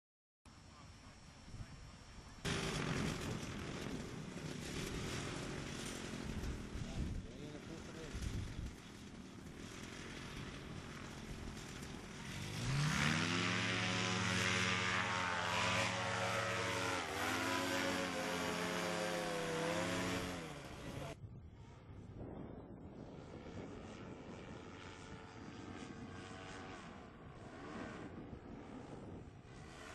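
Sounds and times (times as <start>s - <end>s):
paramotor engine revving: 2.5s - 21.2s.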